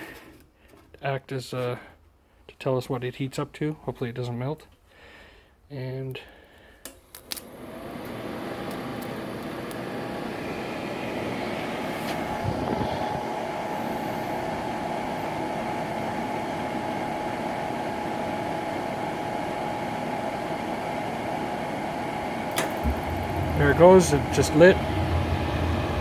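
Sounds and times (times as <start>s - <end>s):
furnace blower whirring hum: 6.8s - 26.0s.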